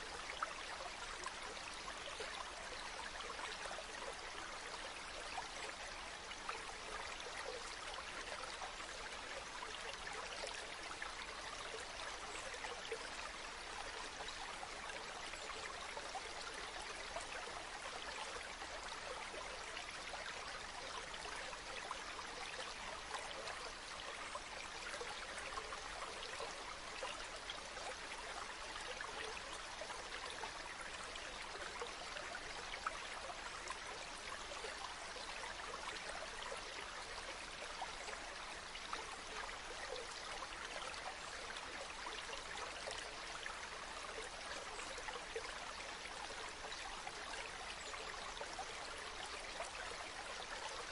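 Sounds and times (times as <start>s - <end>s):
spring water flowing and splashing: 0.0s - 50.9s.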